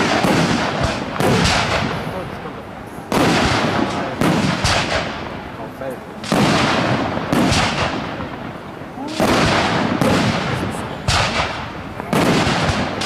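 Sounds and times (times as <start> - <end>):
firework shells bursting: 6.2 - 13.0.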